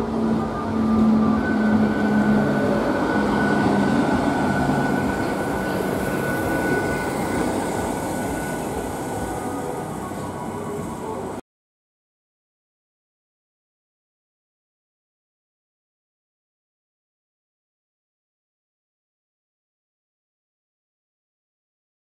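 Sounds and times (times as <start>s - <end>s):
thin high whine: 0.0s - 11.4s
train wheels rumbling on rail: 0.0s - 11.4s.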